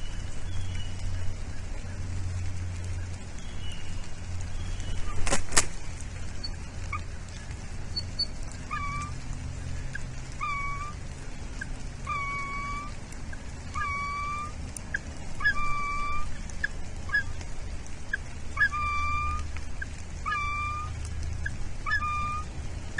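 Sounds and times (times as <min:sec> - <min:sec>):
steady hiss and rumble: 0:00.0 - 0:22.9
bird calling: 0:02.9 - 0:05.7, 0:06.3 - 0:17.4, 0:18.1 - 0:22.5.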